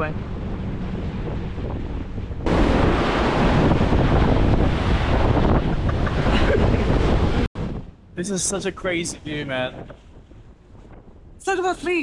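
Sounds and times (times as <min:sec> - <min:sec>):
boat engine drone: 0:00.0 - 0:07.5
wind buffeting microphone: 0:00.0 - 0:12.0.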